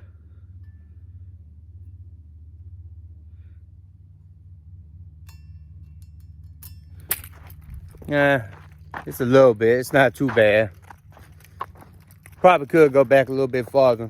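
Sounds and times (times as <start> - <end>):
steady low hum: 0.0 - 14.0
light metallic clink: 5.2 - 8.0.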